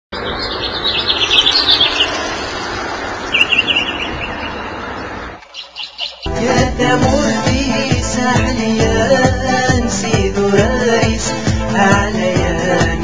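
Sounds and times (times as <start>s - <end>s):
outdoor rushing noise: 0.2s - 5.6s
small birds chirping: 0.2s - 6.3s
music with a beat: 6.3s - 13.0s.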